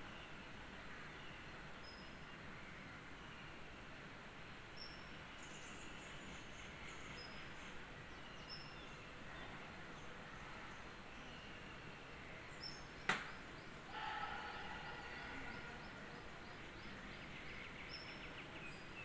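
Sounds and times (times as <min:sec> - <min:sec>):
steady low hiss: 0:00.0 - 0:19.0
small birds chirping: 0:00.1 - 0:02.5, 0:04.7 - 0:19.0
sharp click: 0:13.1 - 0:13.3.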